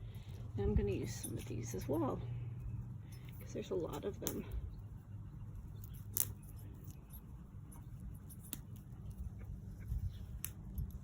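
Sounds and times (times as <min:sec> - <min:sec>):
soft rustling and handling: 0:00.0 - 0:11.0
plant stems snapping: 0:04.2 - 0:04.5, 0:05.8 - 0:07.0, 0:10.3 - 0:11.0.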